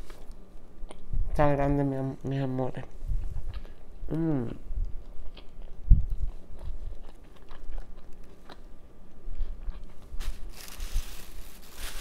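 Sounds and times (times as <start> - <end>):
chewing with wet mouth clicks: 4.5 - 8.7.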